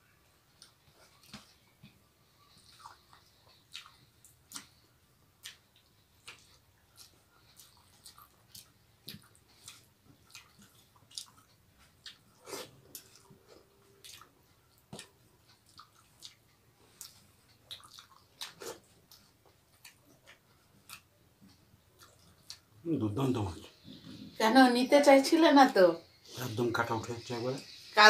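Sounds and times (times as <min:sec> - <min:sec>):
chewing and lip smacks: 0:00.5 - 0:22.8.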